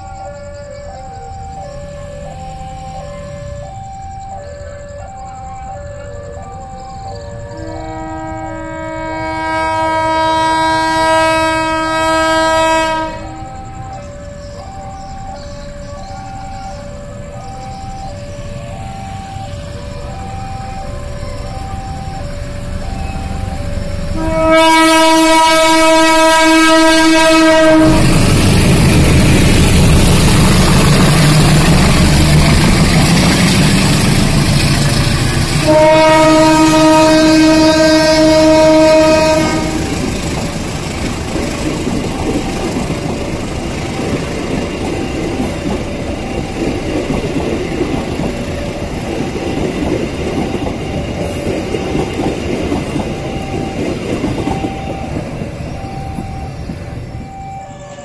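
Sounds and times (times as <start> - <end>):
locomotive engine rumbling: 0.0 - 58.0
two-tone warning signal: 0.0 - 58.0
train horn blast: 7.4 - 13.8, 23.0 - 40.1.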